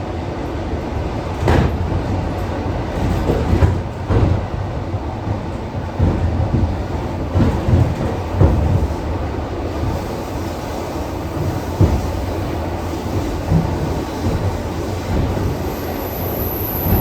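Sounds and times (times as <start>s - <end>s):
train rumbling: 0.0s - 17.0s
wheels clacking over rail joints: 1.4s - 10.4s.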